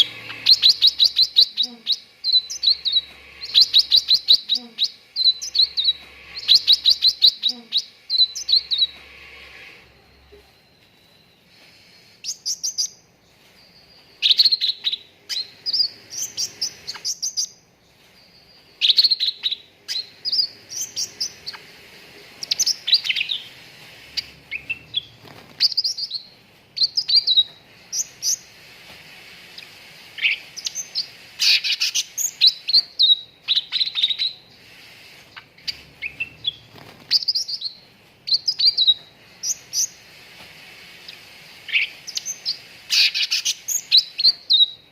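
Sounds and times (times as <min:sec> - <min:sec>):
songbird chirping: 0:00.0 - 0:28.6.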